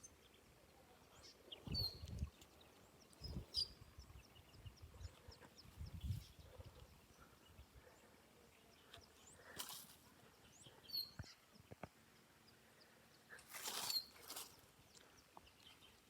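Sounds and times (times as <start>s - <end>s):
brief rustles: 9.5s - 10.0s, 13.4s - 14.6s.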